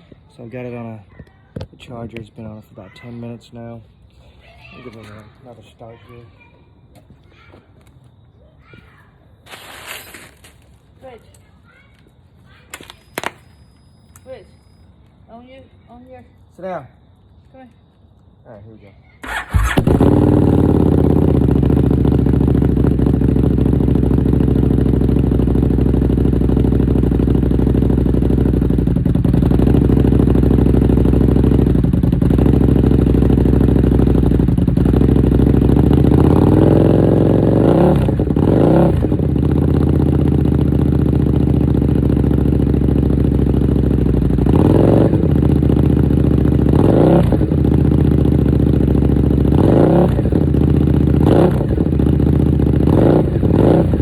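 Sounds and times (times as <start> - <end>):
motorcycle engine idling loudly: 19.3 - 54.0.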